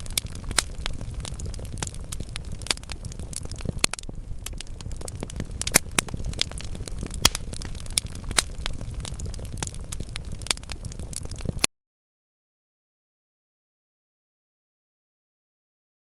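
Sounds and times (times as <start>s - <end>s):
logs burning with crackles: 0.0s - 11.7s.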